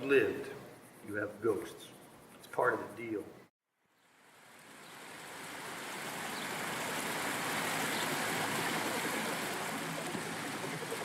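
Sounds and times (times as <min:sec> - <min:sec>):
rushing water: 0:04.6 - 0:11.0.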